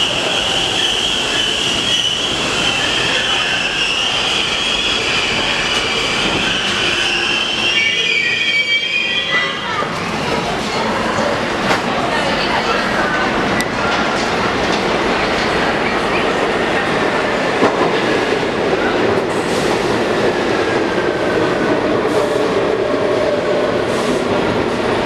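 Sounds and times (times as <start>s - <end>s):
train rumble: 9.4s - 25.0s.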